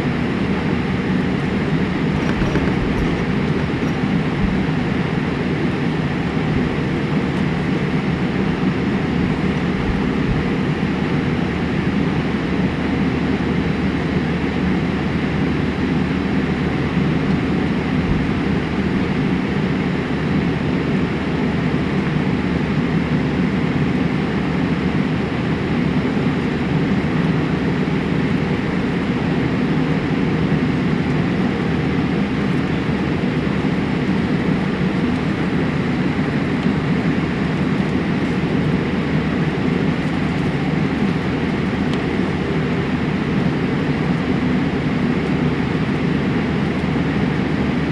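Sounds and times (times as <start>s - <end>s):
vehicle interior rumble: 0.0s - 21.3s.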